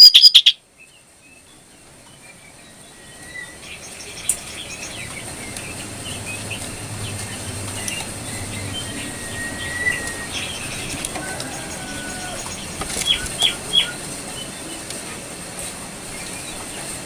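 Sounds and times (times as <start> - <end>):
songbird chirping and whistling: 0.0 - 0.6, 7.8 - 11.0.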